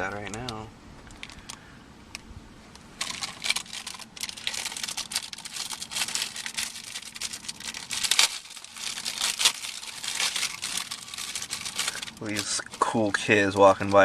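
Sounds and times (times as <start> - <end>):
wrapper crinkling and tearing: 3.0 - 14.0.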